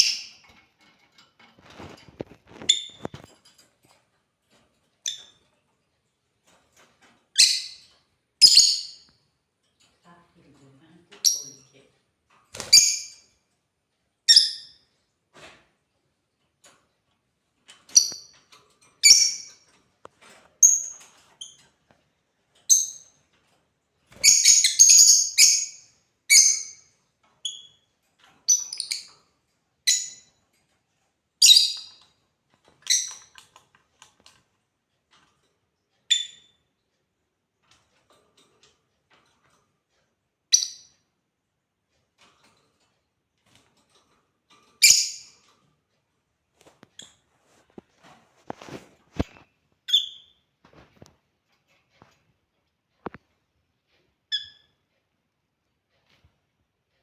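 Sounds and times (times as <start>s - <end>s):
lovebirds chirping: 24.2s - 26.8s.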